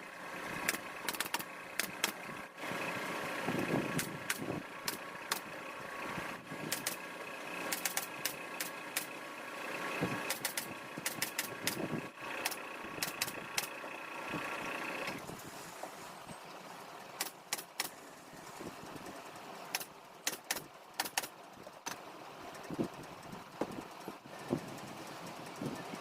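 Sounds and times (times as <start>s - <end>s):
pneumatic staple gun firing: 0.6s - 2.2s, 6.7s - 7.0s, 7.6s - 9.1s, 10.3s - 13.8s, 17.2s - 18.0s, 19.8s - 21.3s.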